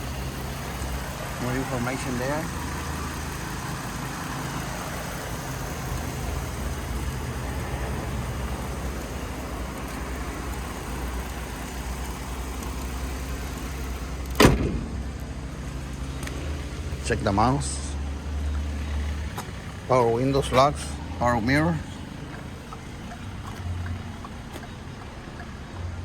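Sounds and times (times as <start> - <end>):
truck engine idling: 0.0 - 26.0
loud thump: 14.3 - 15.3.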